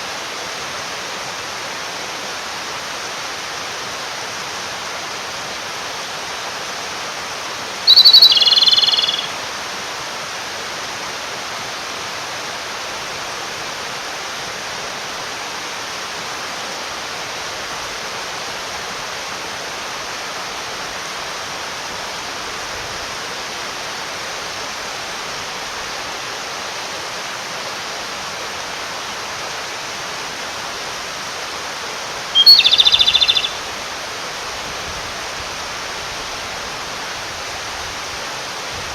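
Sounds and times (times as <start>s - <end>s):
mountain stream rushing: 0.0s - 38.9s
robin singing trill: 7.9s - 9.4s, 32.4s - 33.7s.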